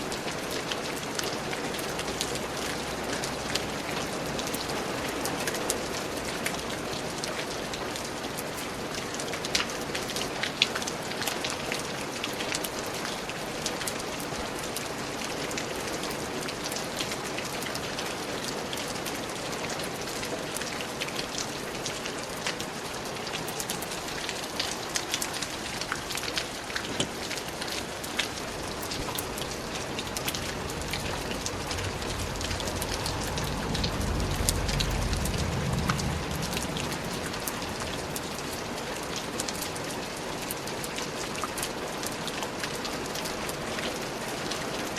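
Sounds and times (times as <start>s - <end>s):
raindrops tapping on surfaces: 0.0s - 44.9s
steady rain falling: 0.0s - 44.9s
low rumble: 28.7s - 38.7s.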